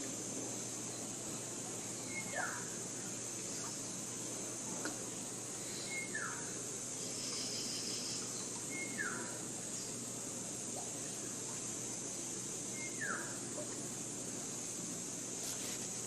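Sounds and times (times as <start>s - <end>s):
bird whistling call: 2.0s - 2.6s, 5.8s - 6.4s, 7.6s - 9.3s, 12.8s - 13.4s.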